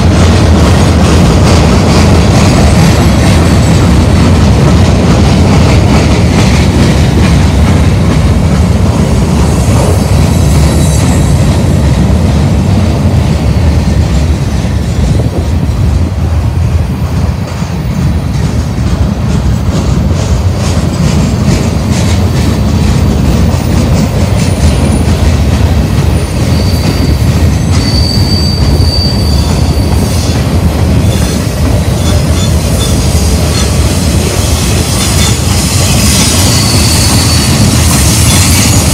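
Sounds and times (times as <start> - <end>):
freight train rumbling past: 0.0 - 38.9
high wheel squeals: 26.2 - 30.4, 35.0 - 38.9.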